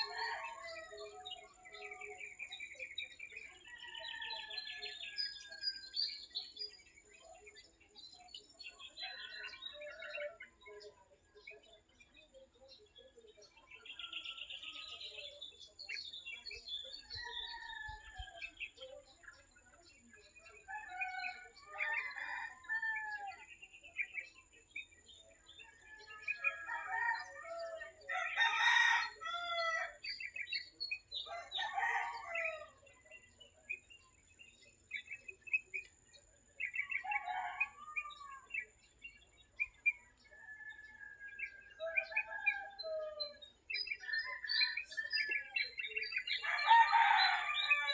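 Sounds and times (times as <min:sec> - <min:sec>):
small birds chirping: 0:00.0 - 0:47.9
rooster crowing: 0:46.4 - 0:47.9.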